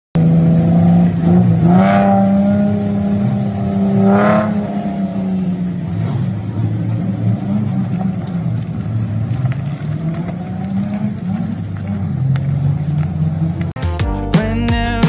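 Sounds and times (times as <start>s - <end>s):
car engine revving at high revs: 0.2s - 13.7s.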